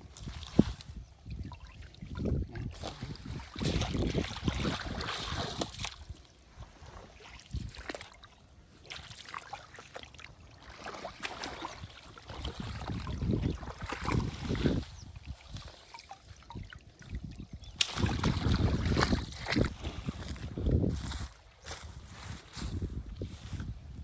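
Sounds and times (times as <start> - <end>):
water sloshing while wading: 0.0 - 23.7
water dripping: 15.5 - 19.1.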